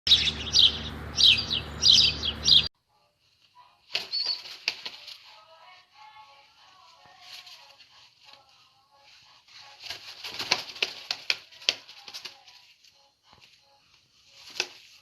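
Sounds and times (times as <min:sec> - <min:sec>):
pigeons flapping wings: 0:03.9 - 0:05.2, 0:09.8 - 0:12.4.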